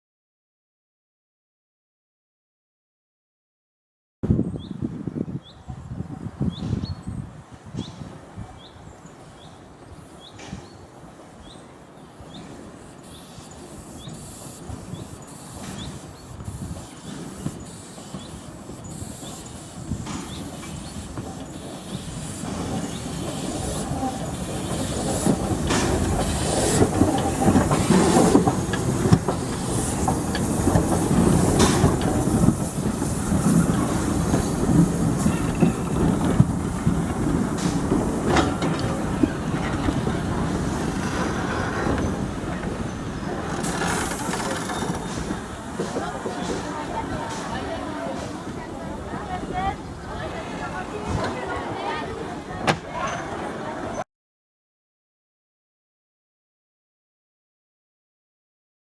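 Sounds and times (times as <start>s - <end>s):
steam train rolling past: 4.8s - 54.0s
wheels clacking over rail joints: 7.7s - 54.0s.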